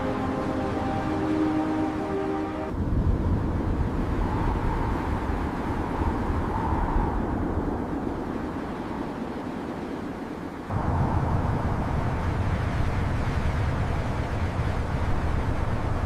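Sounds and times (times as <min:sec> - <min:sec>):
music with held notes: 0:00.0 - 0:02.7
steady low rumble: 0:10.7 - 0:16.0.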